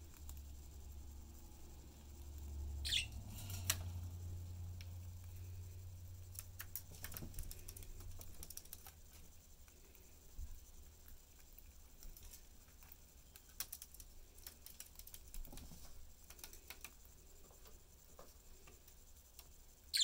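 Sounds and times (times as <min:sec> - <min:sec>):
budgies clicking and tapping: 0:02.1 - 0:03.9, 0:06.2 - 0:09.0, 0:12.8 - 0:15.5, 0:19.4 - 0:20.0
short high bird chirp: 0:02.8 - 0:03.2.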